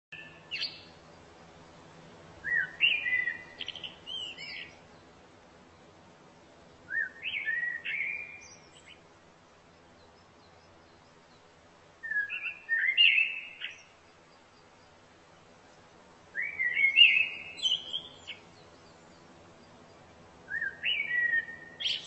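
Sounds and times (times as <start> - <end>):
songbird whistling: 0.1 - 0.9, 2.4 - 4.8, 6.9 - 9.0, 12.0 - 13.9, 16.3 - 19.0, 20.5 - 22.0
faint background noise: 0.1 - 22.0.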